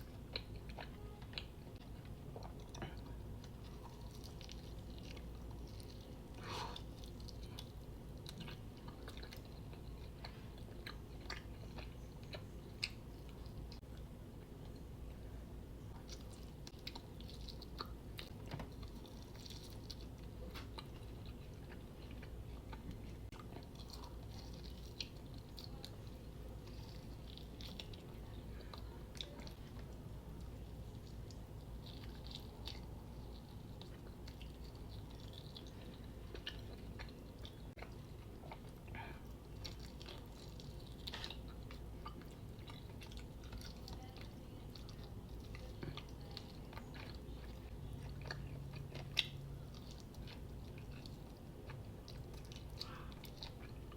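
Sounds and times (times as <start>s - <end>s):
chewing and crunching food: 0.0s - 53.9s.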